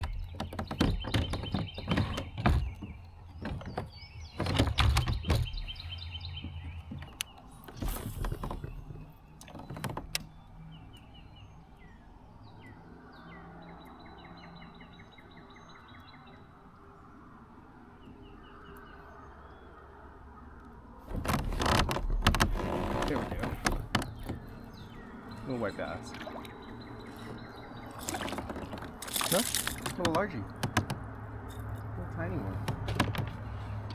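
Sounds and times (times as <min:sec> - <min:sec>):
sharp knocks and thumps: 0:00.0 - 0:10.3, 0:21.1 - 0:31.2, 0:32.6 - 0:33.9
small birds chirping: 0:00.0 - 0:33.9.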